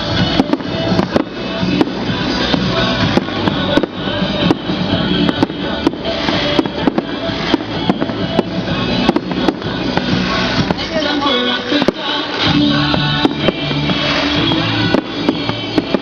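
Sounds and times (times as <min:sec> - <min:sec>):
fireworks bangs and pops: 0:00.0 - 0:16.0
music: 0:00.0 - 0:16.0.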